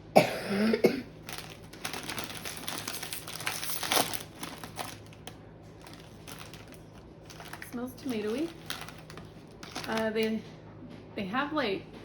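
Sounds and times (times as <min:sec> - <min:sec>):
chip bag crinkling: 0:01.1 - 0:10.4.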